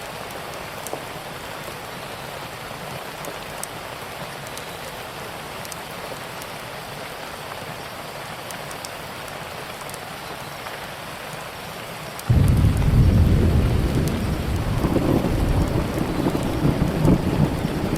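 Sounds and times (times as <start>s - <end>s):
steady rain: 0.0s - 17.9s
wood fire crackles: 12.2s - 17.9s.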